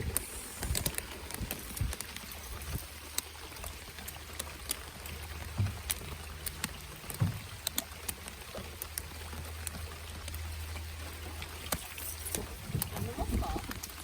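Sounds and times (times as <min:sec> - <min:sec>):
heavy rain hiss: 0:00.0 - 0:03.7, 0:09.2 - 0:14.0
raindrop taps: 0:00.1 - 0:10.5, 0:11.4 - 0:14.0.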